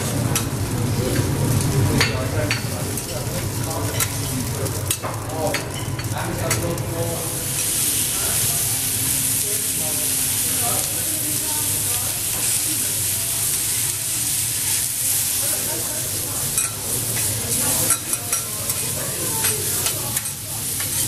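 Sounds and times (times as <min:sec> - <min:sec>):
food frying on a hotplate: 0:00.0 - 0:21.0
high sizzling hiss: 0:02.8 - 0:21.0.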